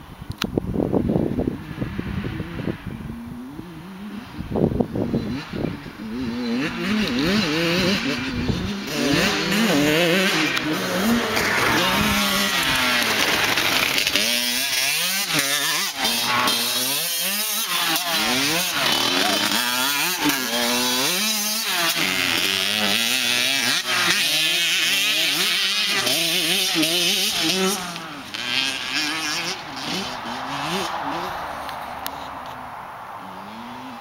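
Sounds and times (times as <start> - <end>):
dirt bike engines revving: 1.0 - 34.0.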